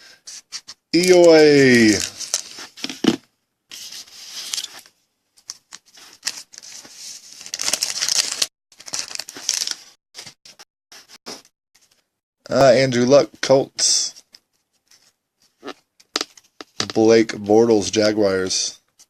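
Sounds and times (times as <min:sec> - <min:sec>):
wrapper tearing and crinkling: 0:01.0 - 0:02.6, 0:07.4 - 0:10.0.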